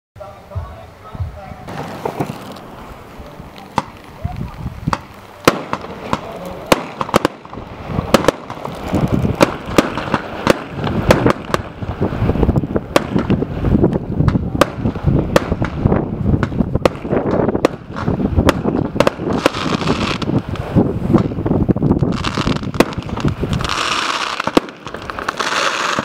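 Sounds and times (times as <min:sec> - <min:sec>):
fireworks bangs: 0:00.5 - 0:26.0.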